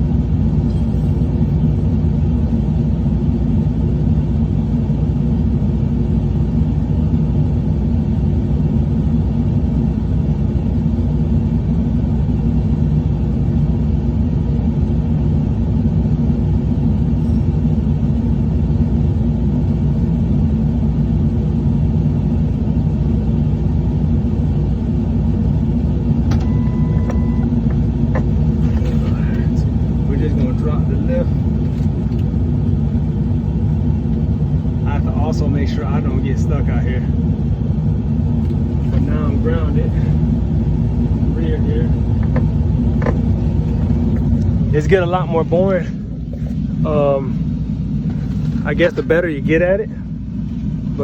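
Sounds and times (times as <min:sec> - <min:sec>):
truck engine low rumble: 0:00.0 - 0:51.0
short high beep: 0:26.4 - 0:27.6.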